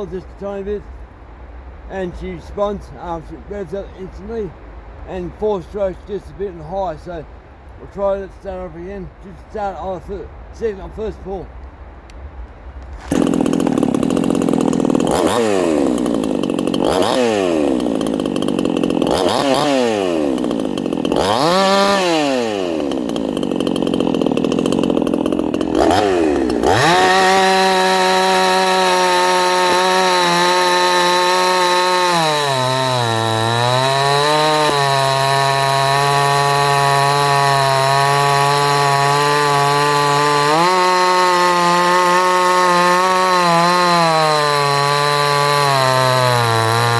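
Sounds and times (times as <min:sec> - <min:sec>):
chainsaw revving: 0:12.9 - 0:46.9.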